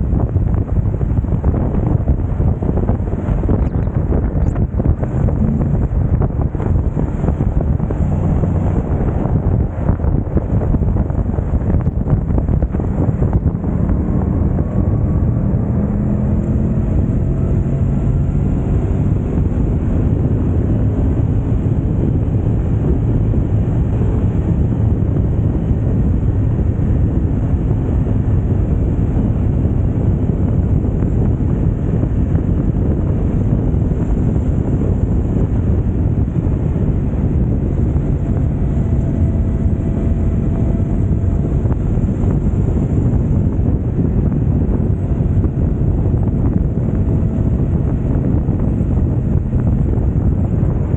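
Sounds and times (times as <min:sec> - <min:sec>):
motorcycle engine at speed: 0:00.0 - 0:50.9
wind rushing over microphone: 0:00.0 - 0:50.9.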